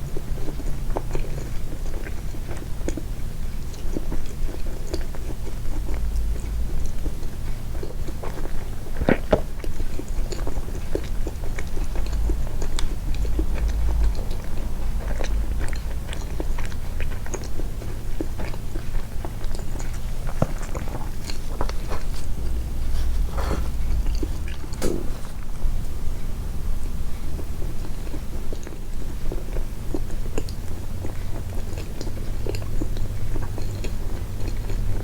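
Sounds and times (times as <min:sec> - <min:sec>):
chewing soft sweets: 0:00.0 - 0:35.0
low rumble: 0:20.7 - 0:27.7.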